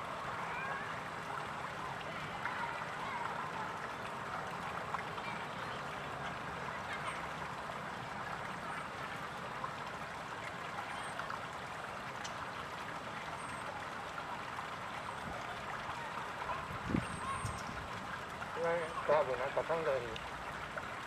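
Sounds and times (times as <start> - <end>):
trickle of flowing water: 0.0 - 21.0.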